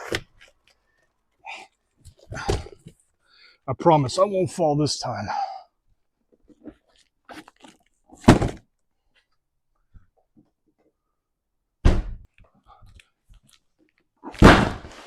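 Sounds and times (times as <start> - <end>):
handling knocks and thuds: 8.2 - 8.7, 11.8 - 12.3, 14.4 - 15.0.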